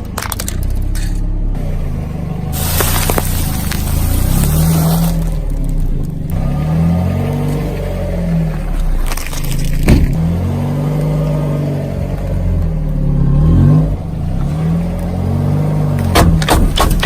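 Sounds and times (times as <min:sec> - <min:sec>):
car engine revving: 0:00.0 - 0:17.0
sharp cracks: 0:15.9 - 0:17.0.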